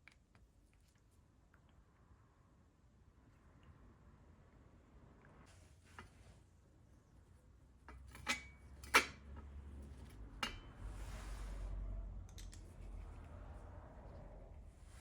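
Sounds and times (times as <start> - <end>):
soft scraping: 10.7 - 15.0.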